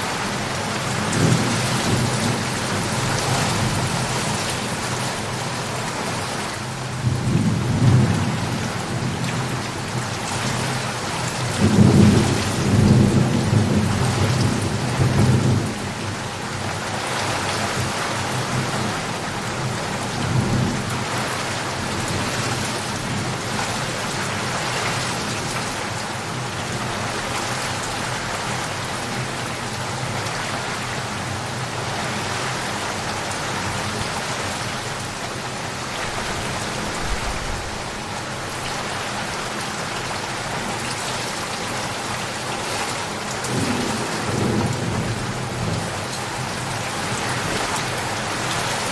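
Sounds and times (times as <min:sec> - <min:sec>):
heavy rain: 0:00.0 - 0:48.9
rolling thunder: 0:36.0 - 0:38.9.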